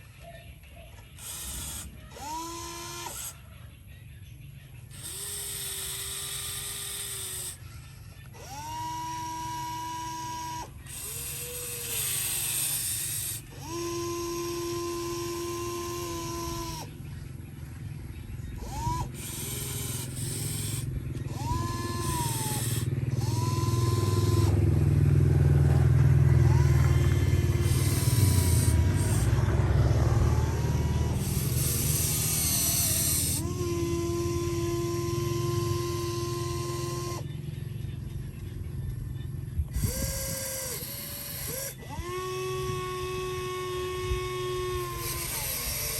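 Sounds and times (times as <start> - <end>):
excavator motors whining: 0.0 - 45.9
steady low hum: 0.0 - 45.9
heavy low rumble: 16.1 - 40.2.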